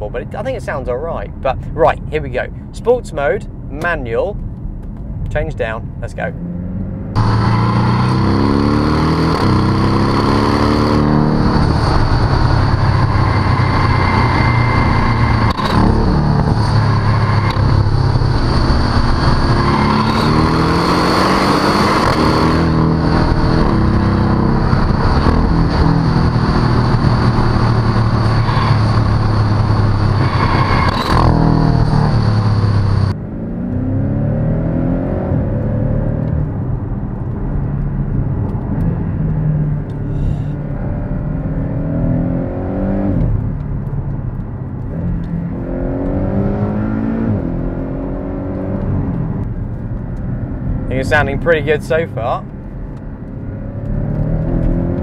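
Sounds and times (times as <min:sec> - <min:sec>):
car engine accelerating hard: 0:06.2 - 0:55.0
exhaust cracks: 0:07.1 - 0:33.8, 0:47.2 - 0:55.0.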